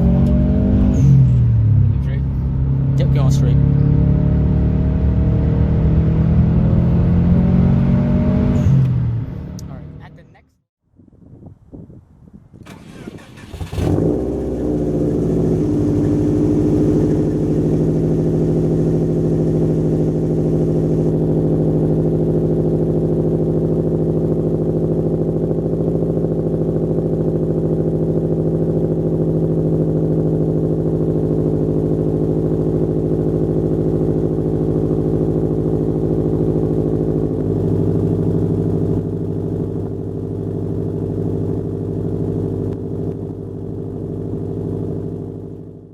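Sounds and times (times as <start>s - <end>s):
car engine starting and idling: 12.5s - 45.9s.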